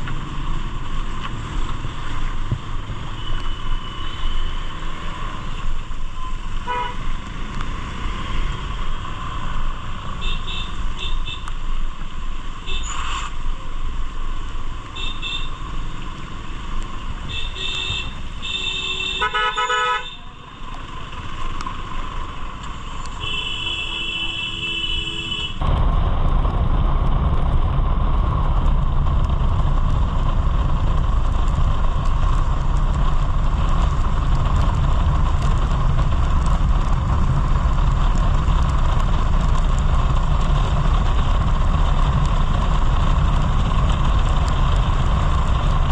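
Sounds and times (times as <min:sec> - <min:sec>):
vehicle horn tooting: 0:06.7 - 0:07.0, 0:17.3 - 0:20.2, 0:23.2 - 0:25.6
low engine rumble: 0:25.6 - 0:45.9.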